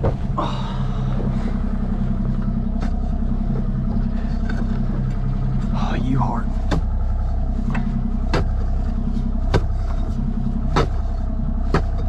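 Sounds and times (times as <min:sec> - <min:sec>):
engine running: 0:00.0 - 0:12.0
digging tool striking ground: 0:08.3 - 0:08.7, 0:09.5 - 0:11.1, 0:11.7 - 0:12.0.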